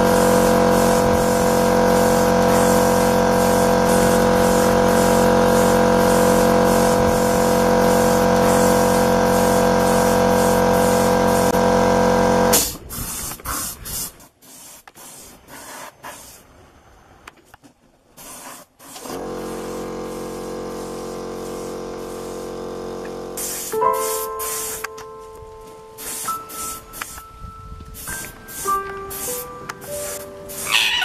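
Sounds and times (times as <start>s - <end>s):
hiss of spray: 0.0s - 11.6s, 12.5s - 16.5s, 18.1s - 24.9s, 26.0s - 27.3s, 27.9s - 31.0s
paint sprayer motor hum: 0.0s - 12.6s, 18.9s - 25.0s, 28.0s - 31.0s.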